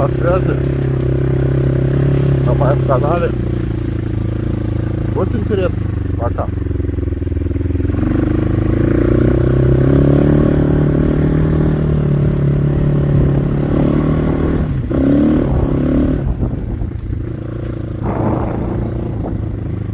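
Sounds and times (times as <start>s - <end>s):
clatter and scraping: 0.0s - 5.2s, 16.2s - 19.9s
motorcycle engine running: 0.0s - 19.9s.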